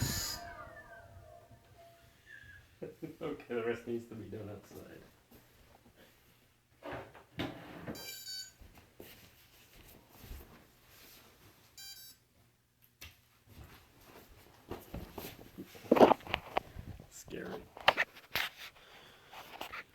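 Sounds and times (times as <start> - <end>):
short electronic beeps: 0.0 - 1.0, 8.0 - 8.6, 11.8 - 12.2.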